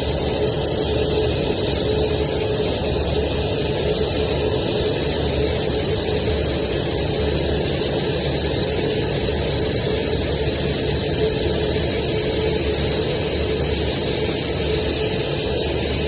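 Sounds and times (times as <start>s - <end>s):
aircraft turbine engines running: 0.0s - 16.0s.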